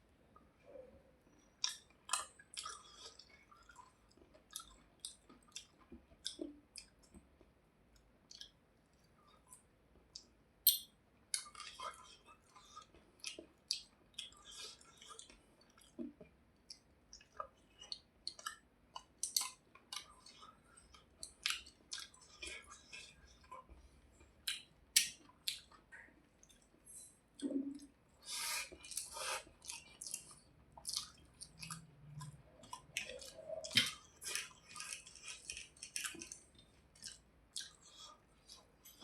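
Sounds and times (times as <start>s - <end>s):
lip smacks and mouth clicks: 1.6s - 3.8s, 8.0s - 9.6s, 28.7s - 39.0s
wet chewing: 11.4s - 39.0s.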